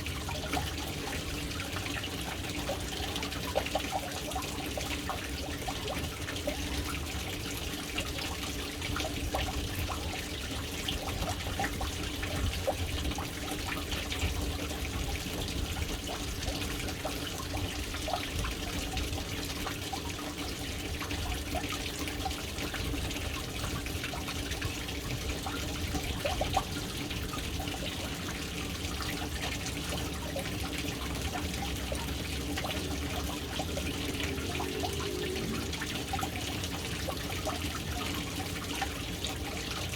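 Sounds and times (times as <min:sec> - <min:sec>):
water dripping and trickling: 0:00.0 - 0:39.9
water stream splashing into tank: 0:00.0 - 0:39.9.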